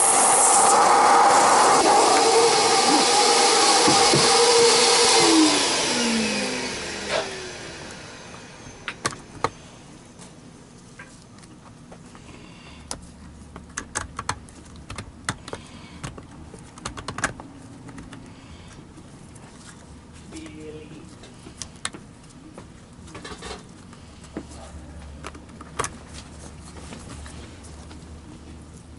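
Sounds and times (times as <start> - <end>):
vacuum cleaner spinning down: 0.0 - 9.5.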